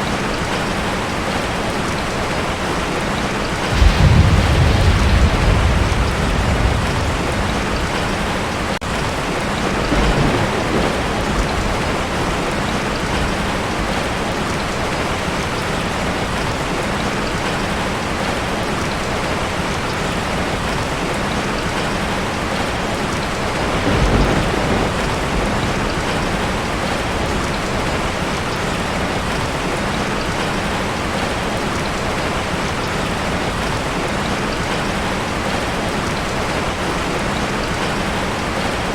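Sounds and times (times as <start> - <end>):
heavy rain on a tin roof: 0.0 - 38.9
thunder rolling: 3.6 - 14.4, 23.3 - 29.4.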